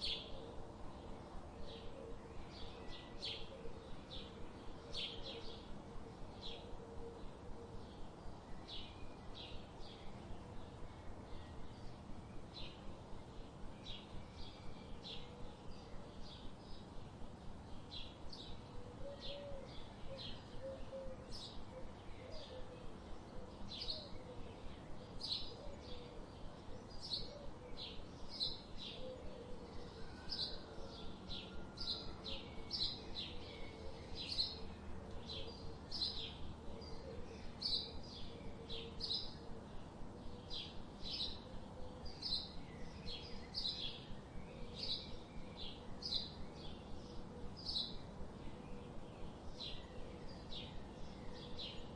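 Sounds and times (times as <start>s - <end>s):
faint steady background noise: 0.0s - 51.9s
bird chirping: 17.7s - 51.9s.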